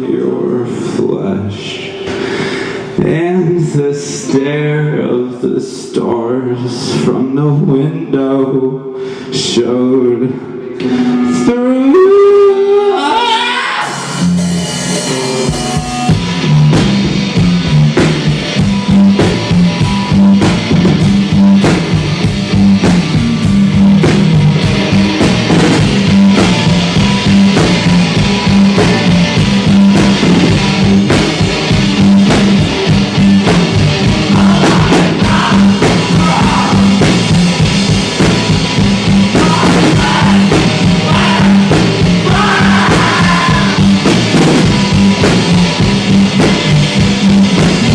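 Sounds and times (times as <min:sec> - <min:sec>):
bass guitar: 0:00.0 - 0:47.9
electric guitar: 0:01.4 - 0:05.0, 0:08.7 - 0:47.9
drum kit beat: 0:13.2 - 0:47.9.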